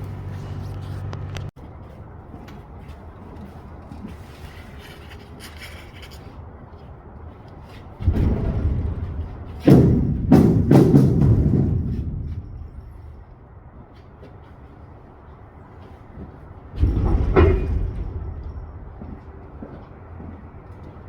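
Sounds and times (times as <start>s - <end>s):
heavy tires thudding into trailer: 8.0s - 13.5s, 16.7s - 19.3s.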